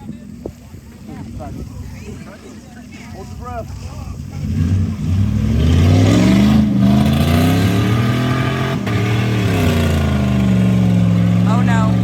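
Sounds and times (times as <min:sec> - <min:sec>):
truck engine revving: 0:03.2 - 0:12.0.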